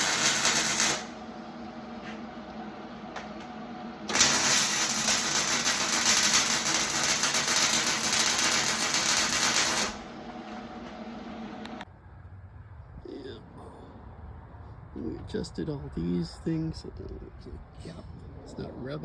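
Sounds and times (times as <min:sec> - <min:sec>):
farm machine engine running: 0:00.0 - 0:01.2, 0:04.0 - 0:11.0
loud rushing machine noise: 0:00.0 - 0:01.8, 0:03.7 - 0:11.8.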